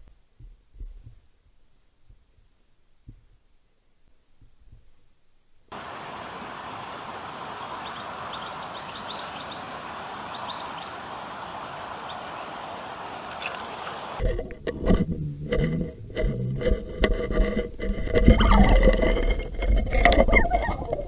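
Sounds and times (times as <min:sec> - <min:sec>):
hiss of background noise: 0:01.3 - 0:14.3
small birds chirping: 0:05.8 - 0:14.2.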